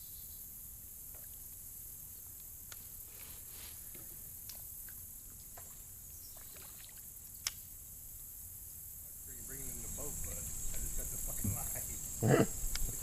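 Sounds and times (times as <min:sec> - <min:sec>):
high insect buzz: 0:00.0 - 0:13.0.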